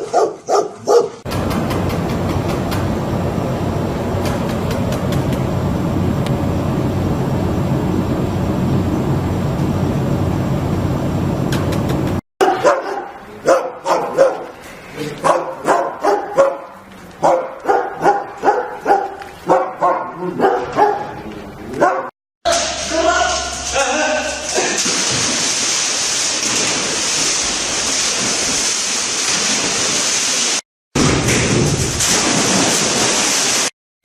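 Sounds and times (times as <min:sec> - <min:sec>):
dog barking: 0:00.0 - 0:01.2, 0:12.4 - 0:14.5, 0:15.2 - 0:21.2, 0:21.8 - 0:22.1.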